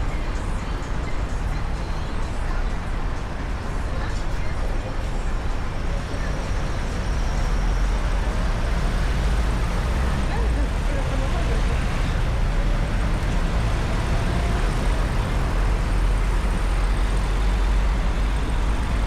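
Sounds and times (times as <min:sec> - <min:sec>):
faint voices: 0:00.0 - 0:19.0
road traffic rumble: 0:00.0 - 0:19.0.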